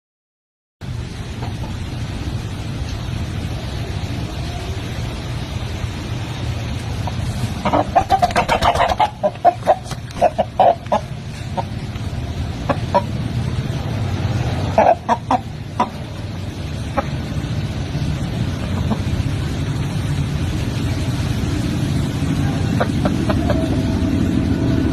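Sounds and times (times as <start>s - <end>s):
steady low rumble: 0.8s - 24.9s
chicken clucking: 7.6s - 11.7s, 14.7s - 16.0s.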